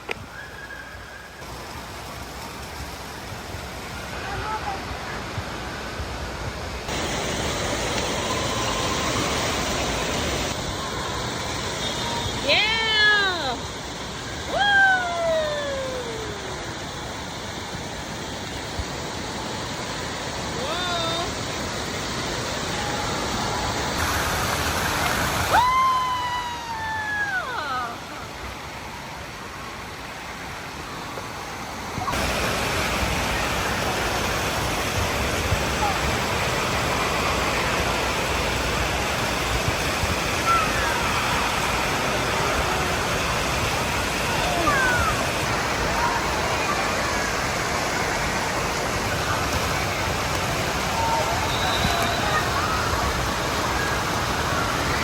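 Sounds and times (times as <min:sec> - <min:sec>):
falling water in echoing hall: 0:00.0 - 0:55.0
falling whistle-like tone: 0:00.2 - 0:01.5, 0:51.0 - 0:53.1.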